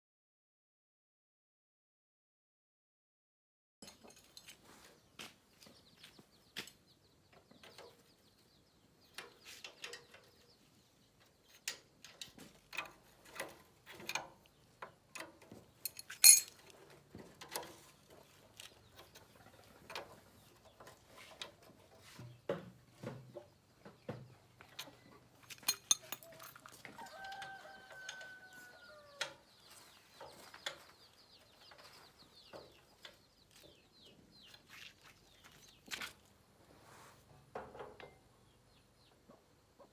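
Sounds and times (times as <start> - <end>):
metal tools clinking: 15.8 - 16.7, 25.4 - 26.8.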